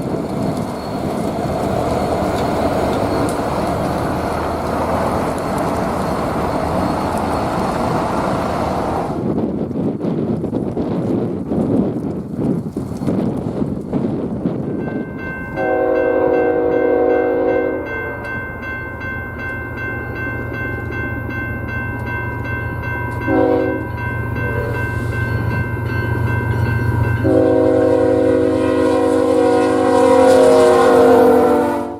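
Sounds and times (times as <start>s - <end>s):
locomotive engine rumble: 0.0s - 31.9s
high ringing with ticks: 14.8s - 27.5s
locomotive air horn: 15.6s - 18.4s, 23.2s - 25.1s, 27.2s - 31.9s.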